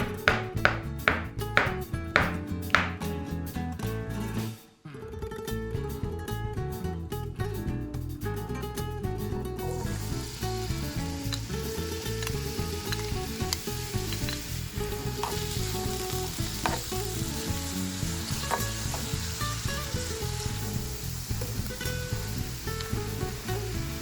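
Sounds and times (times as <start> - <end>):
food sizzling in a frying pan: 9.6 - 24.0.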